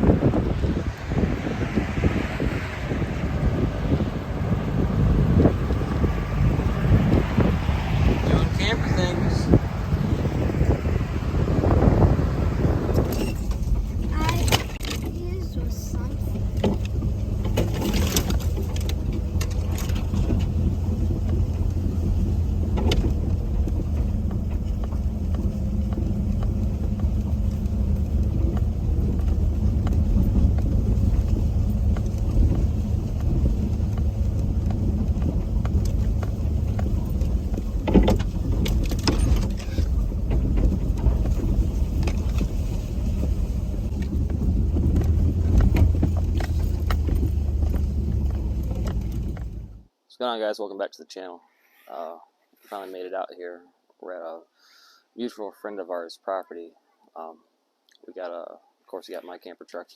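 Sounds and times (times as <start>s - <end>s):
truck engine and road rumble: 0.0s - 50.0s
clicks and rattles: 12.9s - 49.8s.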